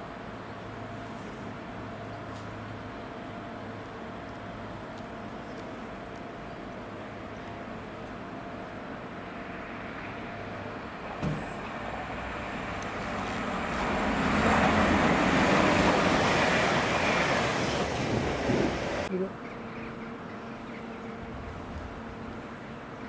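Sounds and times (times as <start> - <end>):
train rumbling on track: 7.7 - 19.2.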